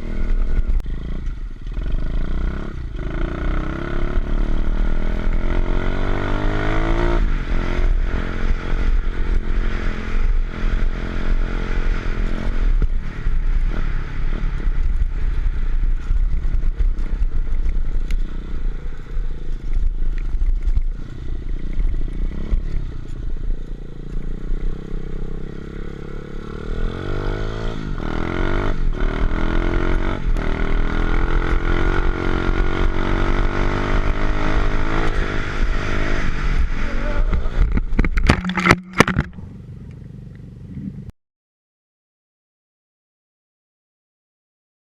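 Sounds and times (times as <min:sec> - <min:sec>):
motorbike engine revving: 0:00.0 - 0:18.9, 0:24.3 - 0:39.5.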